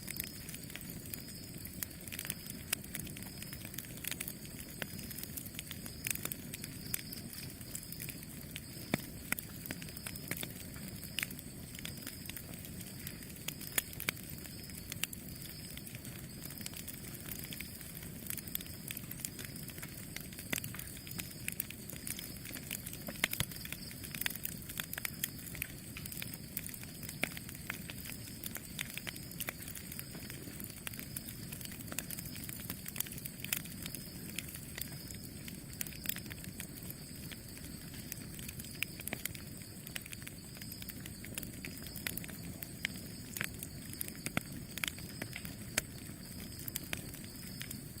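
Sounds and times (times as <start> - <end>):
campfire flames rushing: 0.0 - 48.0
wood crackling and popping: 0.0 - 48.0.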